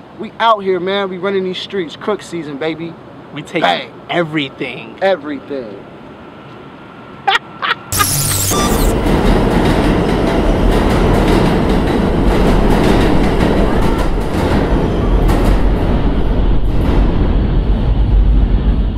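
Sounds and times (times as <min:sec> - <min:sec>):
subway train rumbling: 0:05.8 - 0:07.9, 0:08.9 - 0:18.9.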